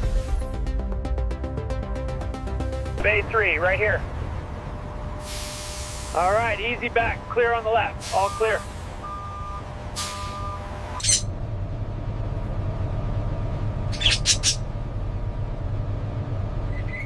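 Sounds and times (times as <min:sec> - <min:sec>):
truck idling hum: 0:00.0 - 0:17.0
air hissing: 0:05.2 - 0:06.2, 0:10.0 - 0:10.4.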